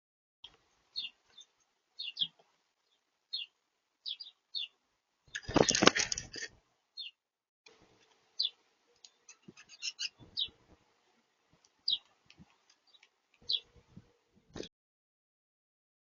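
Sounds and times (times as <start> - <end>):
small bird chirping: 0.4 - 6.3, 7.0 - 7.2, 8.4 - 10.6, 11.8 - 13.8
light taps and clicks: 11.5 - 13.5.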